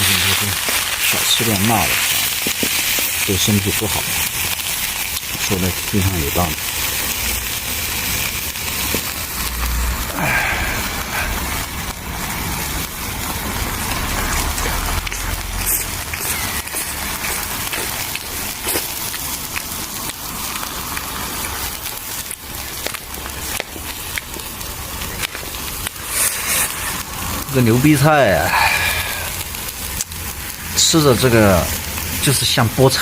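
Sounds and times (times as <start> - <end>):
greens sizzling in a pan: 0.0 - 33.0
utensil clicks and scrapes: 14.0 - 20.2, 22.8 - 27.4.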